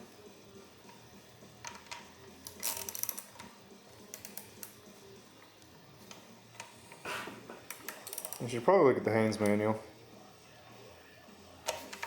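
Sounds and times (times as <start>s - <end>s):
rapid ratchet clicks: 7.7s - 8.4s.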